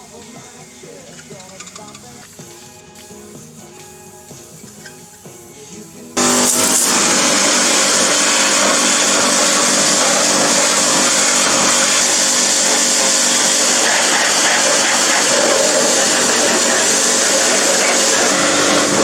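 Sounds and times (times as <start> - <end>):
pressure washer spraying: 6.2 - 19.0.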